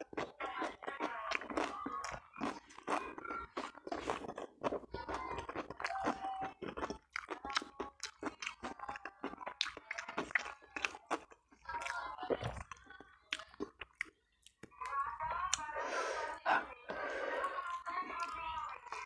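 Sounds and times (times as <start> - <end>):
close chewing with mouth clicks: 0.0 - 15.8, 17.0 - 19.0
person speaking: 14.8 - 19.0.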